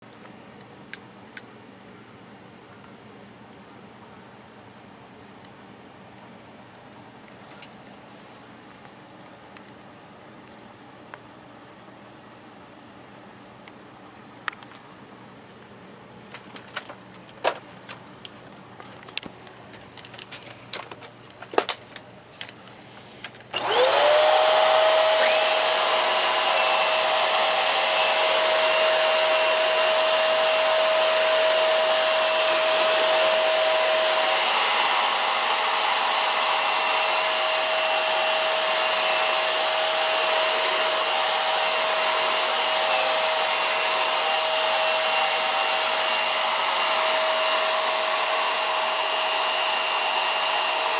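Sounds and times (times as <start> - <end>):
vacuum cleaner motor whining: 23.5 - 50.9.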